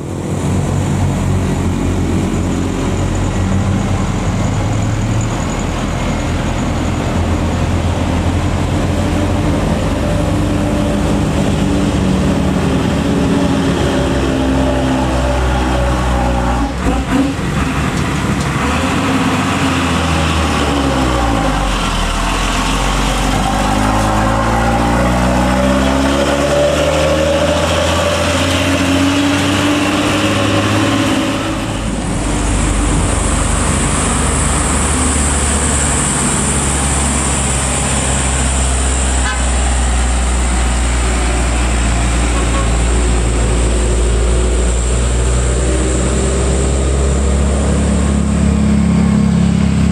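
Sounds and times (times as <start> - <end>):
high-pitched whine: 0.0 - 16.9
truck diesel engine labouring: 0.0 - 49.9.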